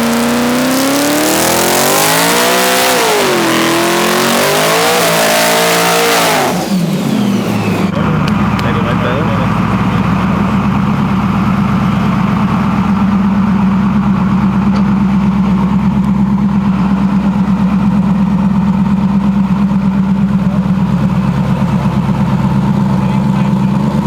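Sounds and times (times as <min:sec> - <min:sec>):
truck engine idling: 0:05.6 - 0:24.0.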